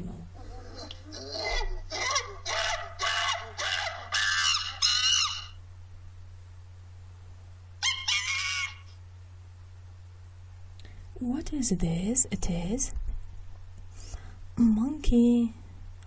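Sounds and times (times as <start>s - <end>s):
shrill monkey calls: 0.5s - 5.6s, 7.8s - 9.0s.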